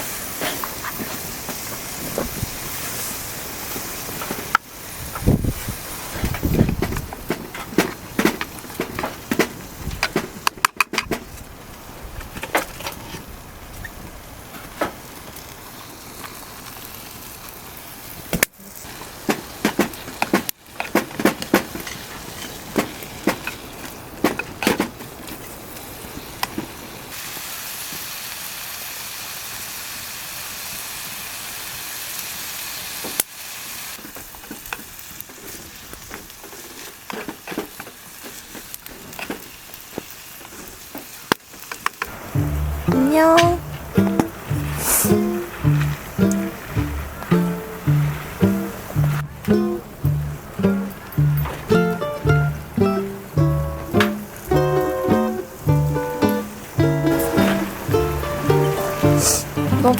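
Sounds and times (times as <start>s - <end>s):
food sizzling in a hot pan: 0.0s - 6.2s, 15.2s - 20.1s, 25.6s - 42.8s, 43.6s - 49.8s
utensils knocking against pan: 42.4s - 55.4s.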